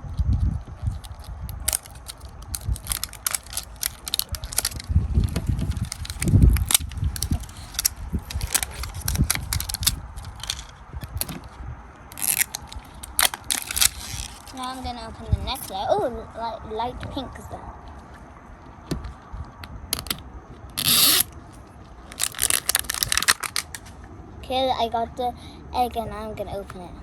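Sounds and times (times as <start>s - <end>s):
wrapping crinkling and tearing: 0.8s - 11.3s, 12.1s - 15.0s, 20.8s - 21.3s, 22.1s - 23.9s.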